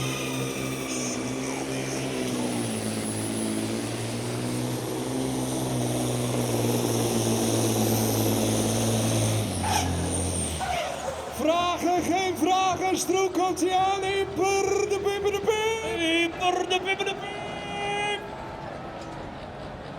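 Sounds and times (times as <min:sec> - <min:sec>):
diesel engine running hard: 0:00.0 - 0:19.9.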